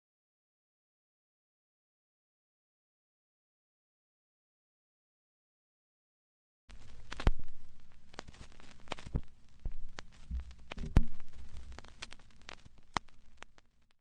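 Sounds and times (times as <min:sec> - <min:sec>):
faint low hum: 0:06.7 - 0:14.0
clicks and knocks: 0:08.2 - 0:13.5.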